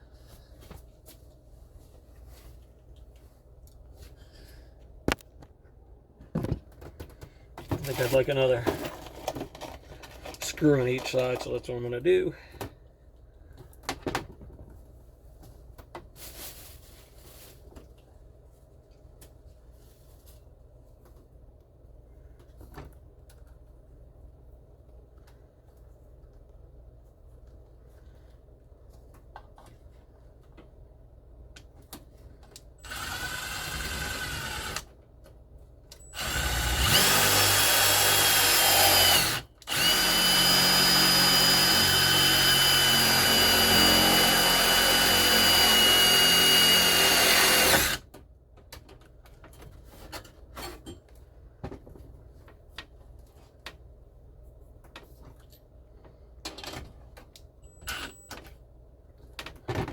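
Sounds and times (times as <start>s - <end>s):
power drill running: 32.8s - 34.9s, 36.2s - 48.0s, 57.9s - 58.2s.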